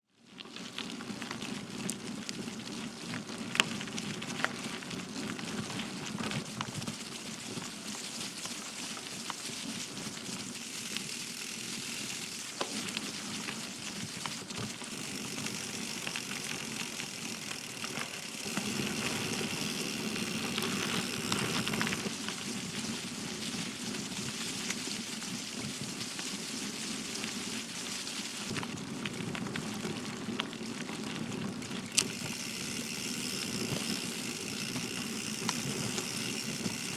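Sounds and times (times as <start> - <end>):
bike tyres crunching on gravel: 0.2 - 36.9.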